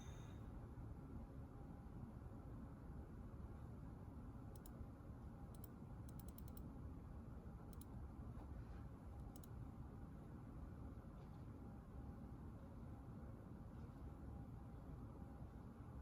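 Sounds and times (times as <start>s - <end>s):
low room hum: 0.0s - 16.0s
computer keyboard keystrokes: 5.5s - 6.7s.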